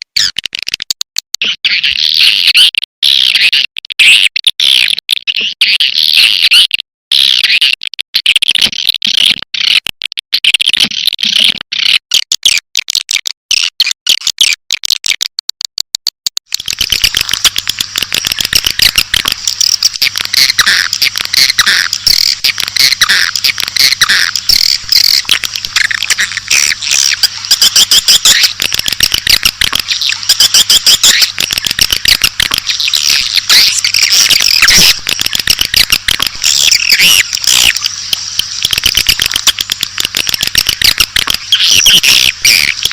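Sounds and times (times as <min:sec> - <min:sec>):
swiftlet chirps and twitters: 0:16.5 - 0:42.9.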